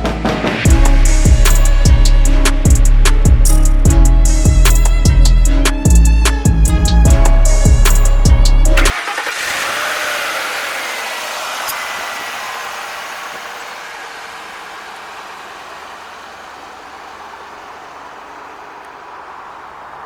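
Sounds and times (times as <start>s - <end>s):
background music: 0.0s - 9.0s
car driving away: 5.2s - 20.0s.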